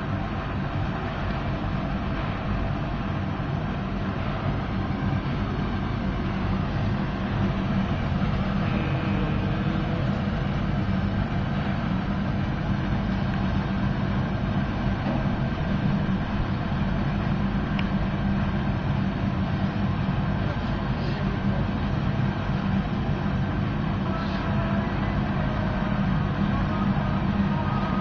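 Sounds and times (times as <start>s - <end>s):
furnace rushing and humming: 0.0s - 28.0s.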